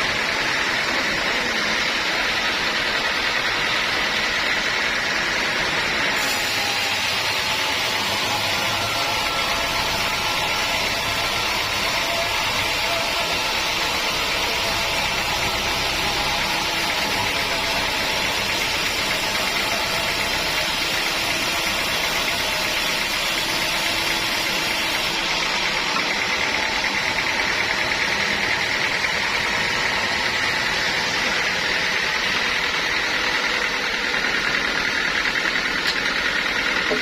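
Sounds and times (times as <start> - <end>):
sawmill machinery running: 0.0 - 37.0.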